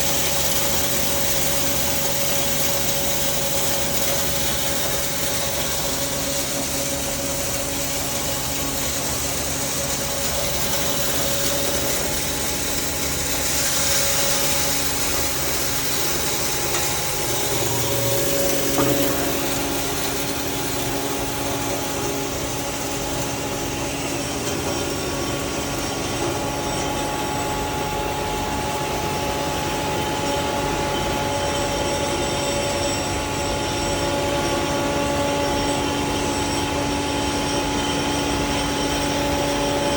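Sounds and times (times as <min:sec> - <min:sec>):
constant hum: 0:00.0 - 0:39.9
hammer mill running: 0:00.0 - 0:39.9
brief knock: 0:18.7 - 0:19.4.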